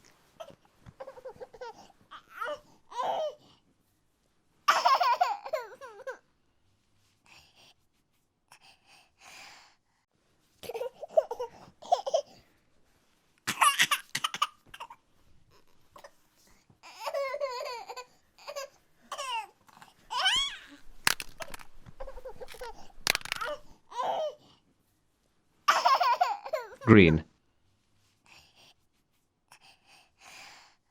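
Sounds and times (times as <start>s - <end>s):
baby laughing and babbling: 0.4s - 3.4s, 4.7s - 6.2s, 21.4s - 24.4s, 25.7s - 26.9s.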